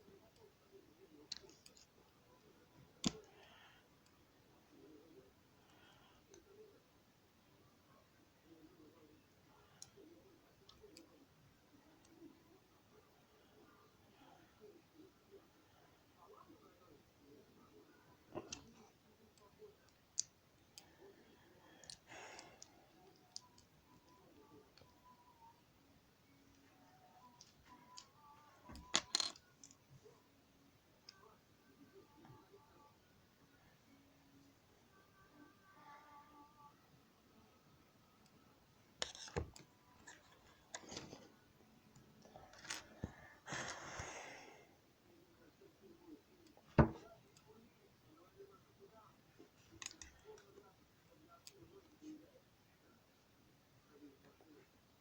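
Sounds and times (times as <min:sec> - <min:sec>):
plastic pieces clicking: 0:28.7 - 0:29.8.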